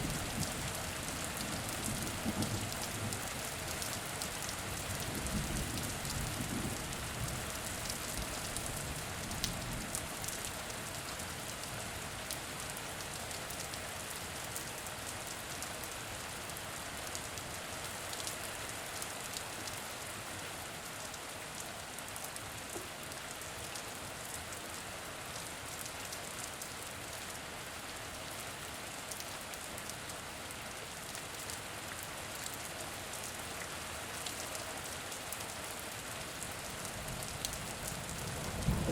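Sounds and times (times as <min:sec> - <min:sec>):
rain drops ticking: 0:00.0 - 0:19.8, 0:32.3 - 0:38.9.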